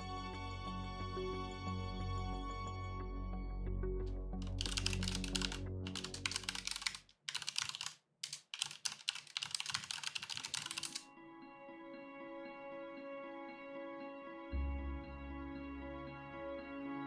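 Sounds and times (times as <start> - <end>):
soft background music: 0.0 - 7.0, 9.8 - 17.0
rapid keyboard typing: 4.4 - 11.0.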